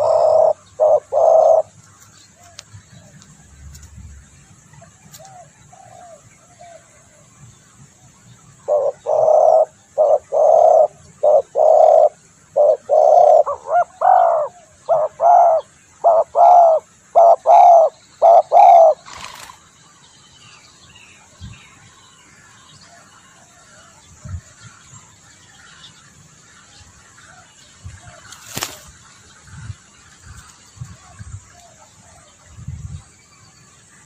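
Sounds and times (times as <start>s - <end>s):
dove cooing: 0.0s - 1.8s, 8.6s - 19.6s.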